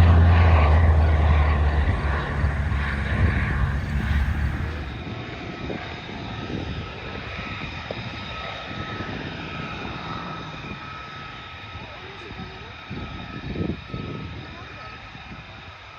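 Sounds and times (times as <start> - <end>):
airplane engine drone: 0.0 - 15.9.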